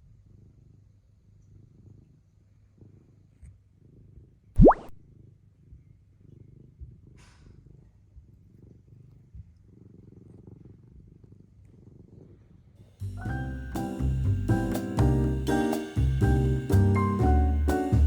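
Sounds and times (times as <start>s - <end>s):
cat purring: 0.0s - 4.5s, 5.1s - 18.0s
music: 13.0s - 18.0s.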